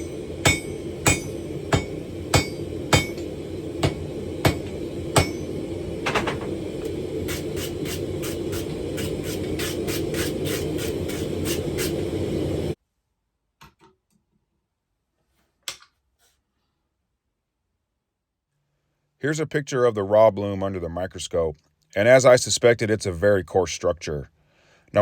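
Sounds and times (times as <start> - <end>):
hammer ringing on steel: 0.0 - 5.6.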